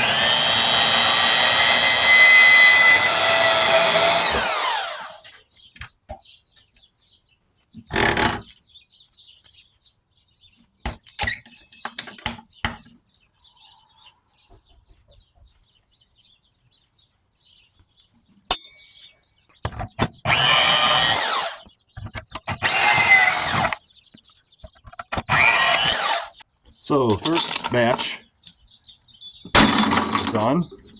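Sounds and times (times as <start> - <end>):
bandsaw cutting metal tubes: 0.0 - 5.3, 20.2 - 21.7, 22.5 - 23.8, 25.1 - 26.4, 27.0 - 28.2, 29.6 - 30.6
metal tubes clattering: 26.9 - 28.2, 29.2 - 30.9.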